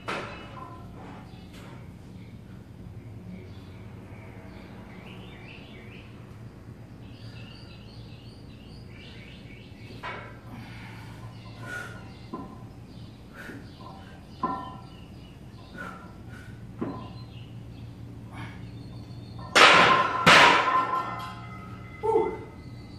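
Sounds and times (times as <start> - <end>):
small birds chirping: 0.0 - 19.5, 22.0 - 22.9
steady low hum: 0.0 - 22.9.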